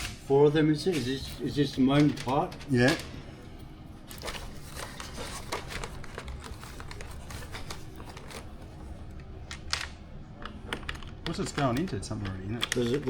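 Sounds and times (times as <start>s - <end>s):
plastic parts clicking and rustling: 1.9s - 3.2s, 4.1s - 13.0s.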